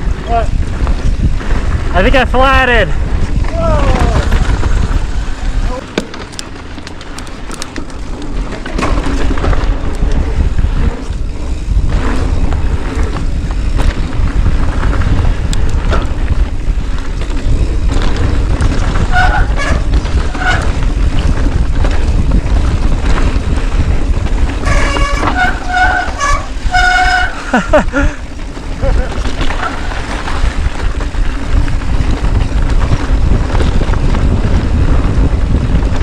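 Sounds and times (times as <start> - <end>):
wind buffeting microphone: 0.0 - 36.0
horn blasts: 24.6 - 27.7.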